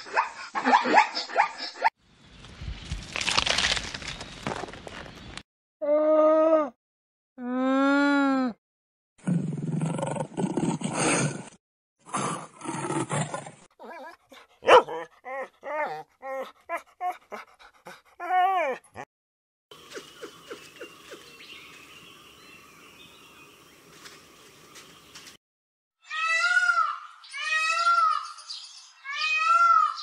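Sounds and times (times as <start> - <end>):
lion growling: 9.2 - 11.5
dog whining and yipping: 13.8 - 17.5, 18.2 - 19.1.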